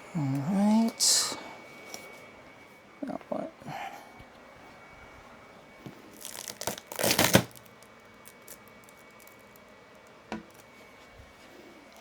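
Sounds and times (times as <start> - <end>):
packaging tearing: 6.2 - 9.4.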